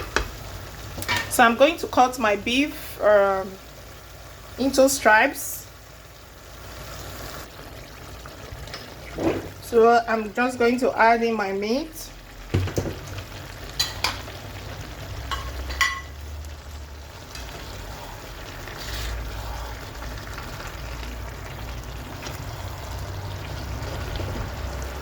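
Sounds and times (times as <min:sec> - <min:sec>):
beef sizzling in a pan: 0:00.0 - 0:25.0
utensil clinking against pan: 0:15.3 - 0:16.2.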